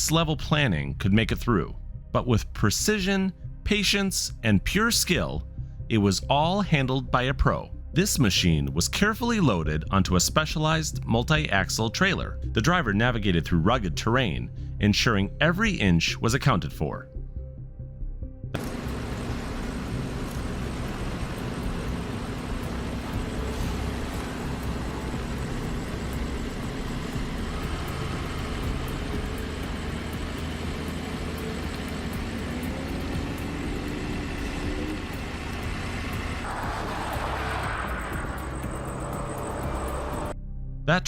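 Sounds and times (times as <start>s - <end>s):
road noise: 18.6s - 40.4s
truck engine running: 18.6s - 40.4s.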